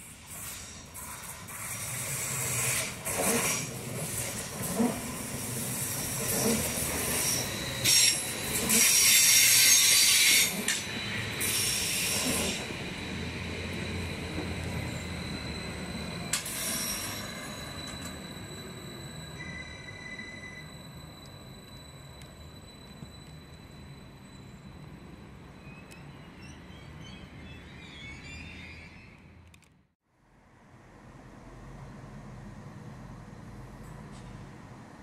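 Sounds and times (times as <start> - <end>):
thin steady train whine: 0.0 - 35.0
train wheels rumbling: 0.2 - 27.4
wheel squeal screech: 0.4 - 26.3.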